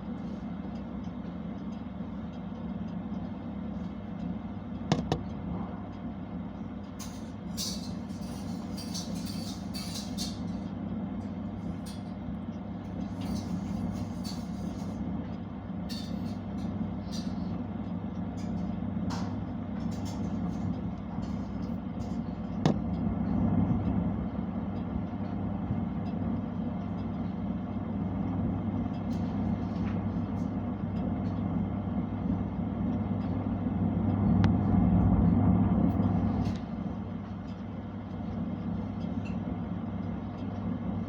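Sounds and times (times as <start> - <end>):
oven humming: 0.0 - 41.0.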